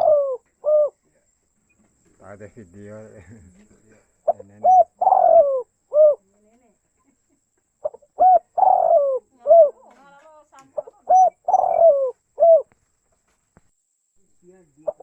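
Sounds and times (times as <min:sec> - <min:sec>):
dove cooing: 0:00.0 - 0:01.1, 0:03.4 - 0:06.4, 0:07.8 - 0:12.8.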